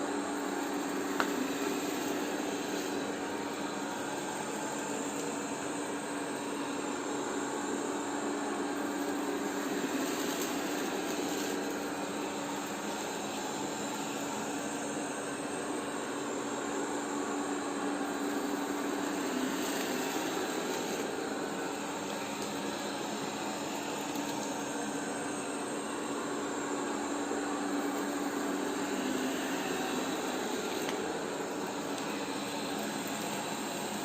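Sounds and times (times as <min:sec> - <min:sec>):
robot vacuum whirring: 0:00.0 - 0:34.0.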